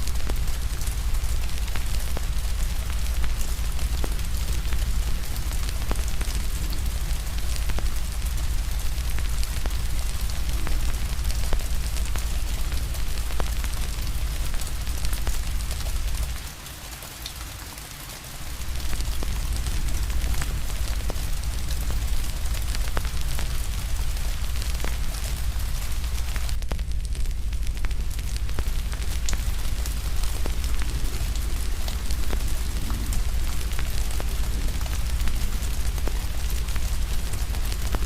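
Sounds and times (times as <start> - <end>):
wood fire crackling: 0.0 - 16.7, 18.4 - 38.0
steady rain: 0.0 - 38.0
deep low rumble: 18.6 - 38.0.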